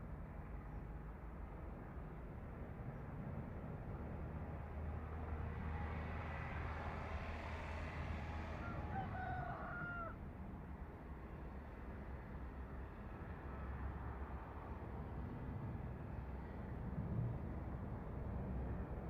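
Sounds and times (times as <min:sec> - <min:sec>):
rooster crowing: 0:08.5 - 0:10.2.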